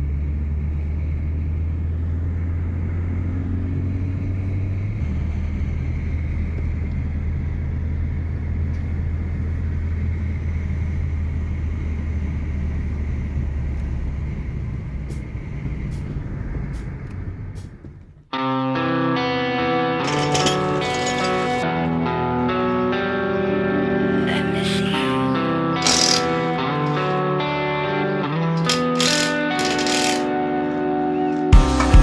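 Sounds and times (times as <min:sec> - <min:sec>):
car engine and road rumble: 0:00.0 - 0:18.3.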